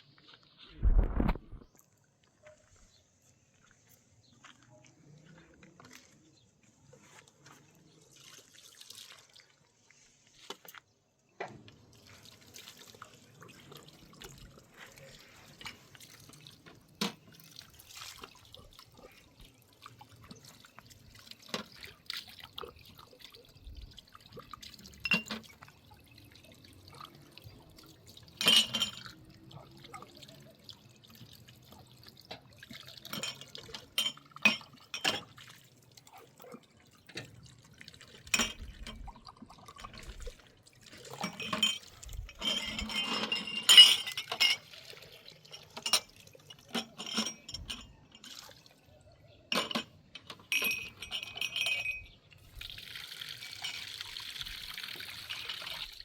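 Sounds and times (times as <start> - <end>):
water splashing and dripping: 6.9 - 10.7, 11.4 - 43.2, 44.1 - 49.3, 52.3 - 56.0
glassware and dishes clinking: 24.9 - 25.7, 28.4 - 30.4, 33.0 - 35.4, 38.2 - 39.1, 41.1 - 44.8, 45.4 - 48.4, 49.3 - 52.4.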